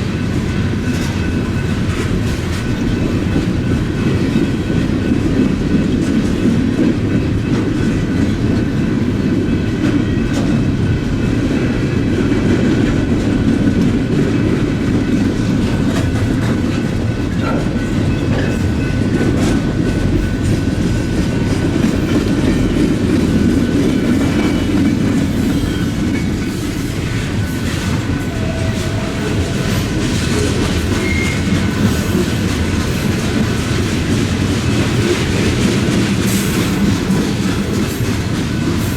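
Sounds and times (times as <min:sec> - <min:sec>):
freight train rumbling past: 0:00.0 - 0:38.9
wheels clacking over rail joints: 0:00.0 - 0:38.9
high squeal: 0:31.0 - 0:31.6.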